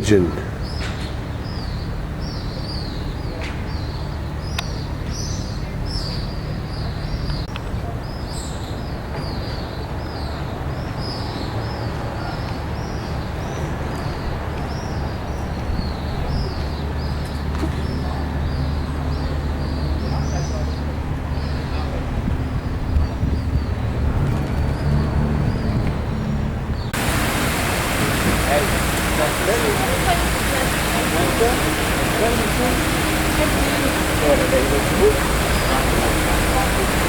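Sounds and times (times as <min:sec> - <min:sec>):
small birds chirping: 0:26.8 - 0:37.0
steady low rumble: 0:27.0 - 0:37.0.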